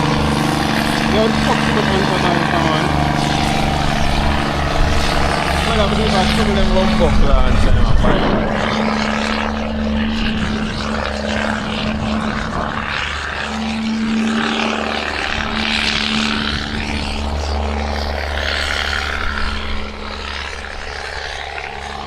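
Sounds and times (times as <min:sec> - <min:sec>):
road and wind noise: 0:00.0 - 0:22.0
truck diesel engine running: 0:00.0 - 0:22.0.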